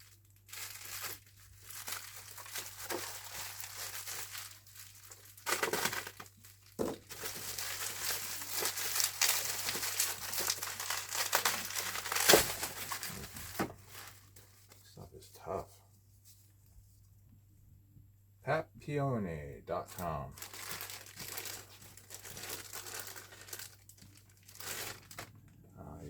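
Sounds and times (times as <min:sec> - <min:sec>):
packaging crinkling: 0:00.0 - 0:14.7, 0:19.9 - 0:25.4.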